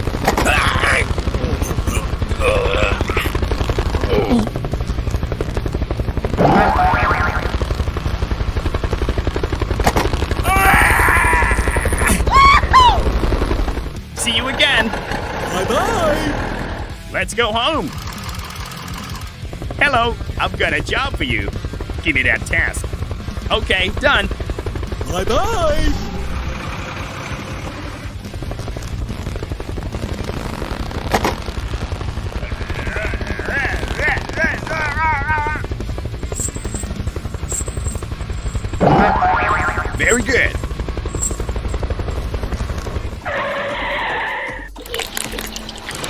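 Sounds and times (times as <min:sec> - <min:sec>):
pulsing engine: 0:00.0 - 0:44.7
warbling chirps: 0:06.4 - 0:07.5, 0:38.8 - 0:40.3
bending squeals: 0:43.2 - 0:44.7.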